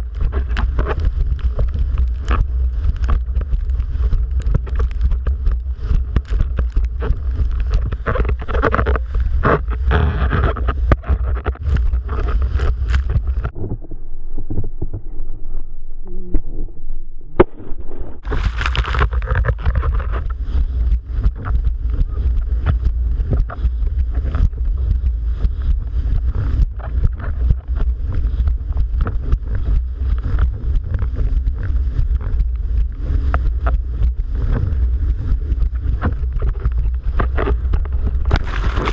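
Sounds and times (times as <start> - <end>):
strong wind buffeting microphone: 0.0 - 15.7, 18.1 - 38.9
splashing water: 38.2 - 38.9.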